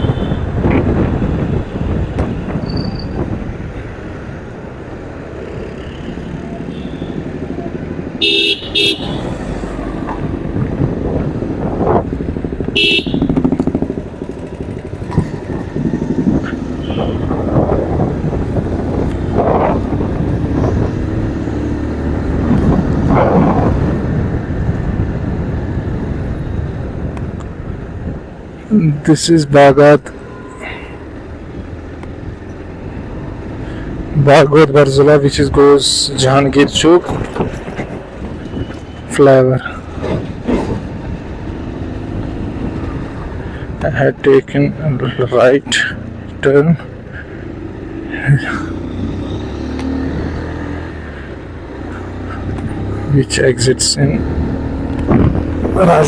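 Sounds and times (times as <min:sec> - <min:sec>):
vehicle horns honking: 0:00.0 - 0:00.5, 0:06.7 - 0:07.2, 0:08.2 - 0:09.4, 0:12.7 - 0:13.4, 0:16.8 - 0:17.3
motorcycle road and engine noise: 0:00.0 - 0:56.0.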